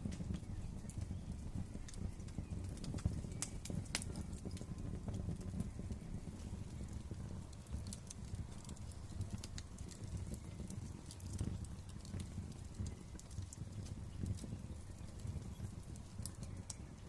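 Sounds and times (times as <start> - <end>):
fire crackling and popping: 0.0 - 17.0.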